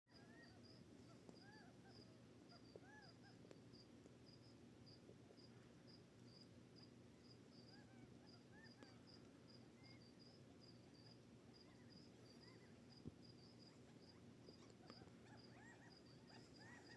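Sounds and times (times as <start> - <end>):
low steady hum: 0.1 - 16.9
quail calls: 1.2 - 3.4, 7.7 - 9.1, 13.7 - 16.9.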